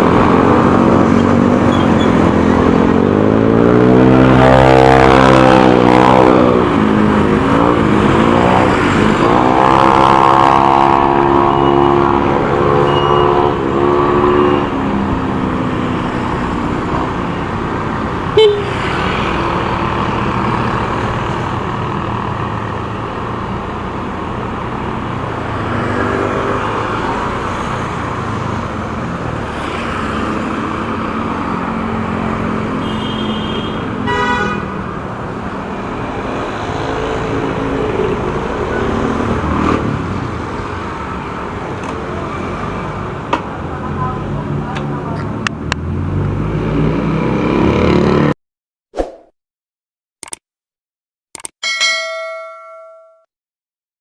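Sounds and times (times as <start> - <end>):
sharp click: 50.2 - 50.4, 51.4 - 51.6.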